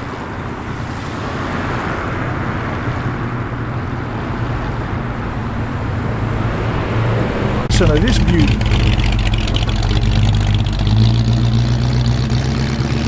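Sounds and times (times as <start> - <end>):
road and traffic noise: 0.0 - 13.0
van engine driving past: 0.5 - 13.0.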